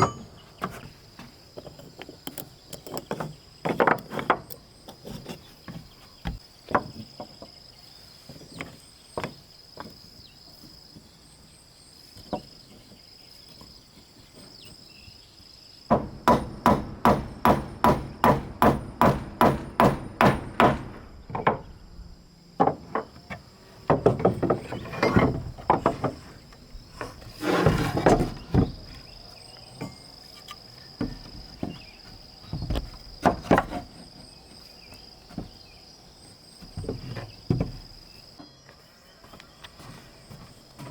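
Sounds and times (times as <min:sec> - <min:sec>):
high insect drone: 0:00.0 - 0:40.9
hammer striking wood: 0:15.9 - 0:21.7.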